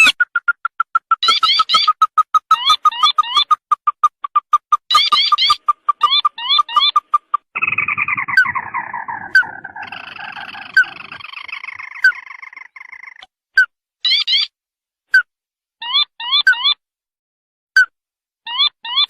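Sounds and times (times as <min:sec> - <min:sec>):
bird rattling trill: 0:00.0 - 0:13.2
bird rising chirps: 0:00.0 - 0:13.2.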